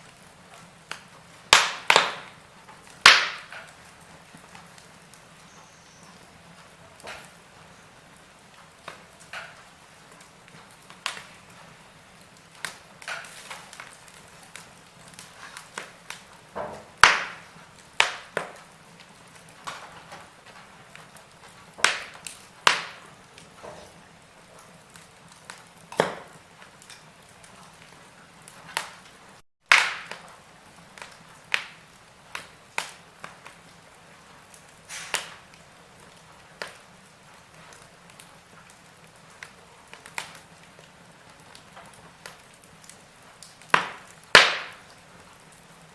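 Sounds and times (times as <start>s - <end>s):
faint steady hiss: 0.0s - 45.9s
wood fire crackling and popping: 0.0s - 45.9s.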